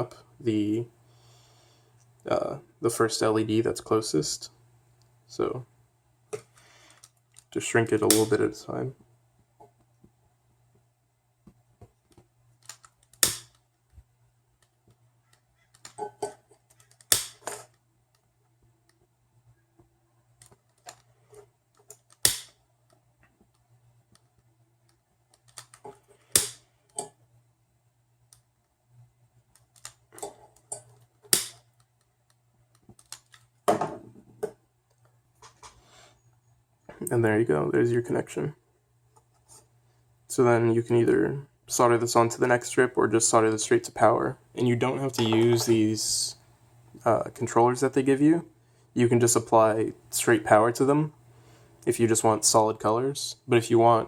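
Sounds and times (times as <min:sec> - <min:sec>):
handling noise: 0:45.0 - 0:46.1.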